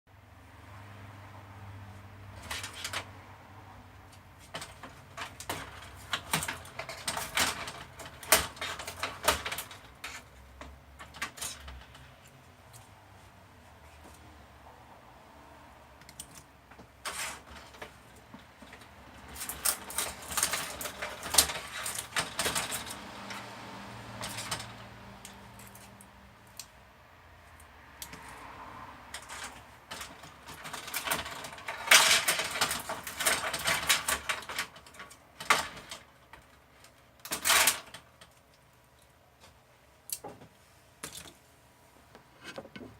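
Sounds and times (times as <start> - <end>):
plastic parts clicking and rattling: 2.4 - 3.1, 4.1 - 12.9, 16.0 - 23.4, 24.1 - 26.8, 29.1 - 39.1.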